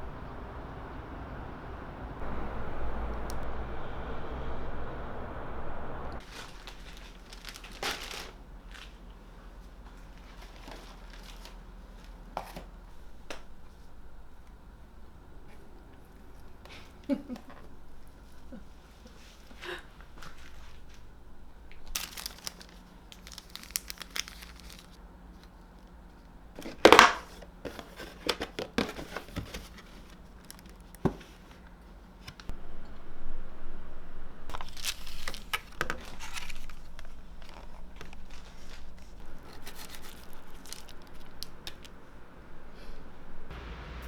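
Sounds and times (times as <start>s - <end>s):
paper tearing and crinkling: 6.2s - 9.0s, 21.9s - 25.0s, 34.5s - 41.9s.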